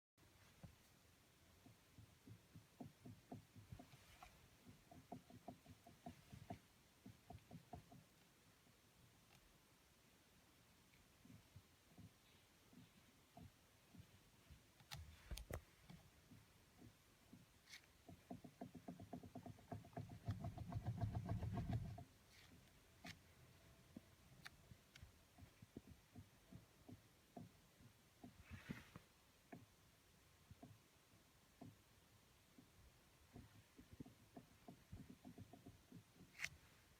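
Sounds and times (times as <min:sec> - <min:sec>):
fast run of steering wheel clicks: 0:16.8 - 0:22.1.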